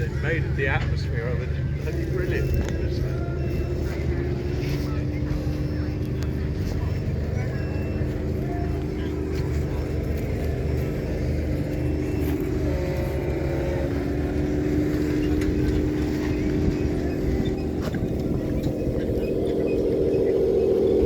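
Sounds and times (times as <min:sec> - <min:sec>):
vehicle engine droning: 0:00.0 - 0:21.0.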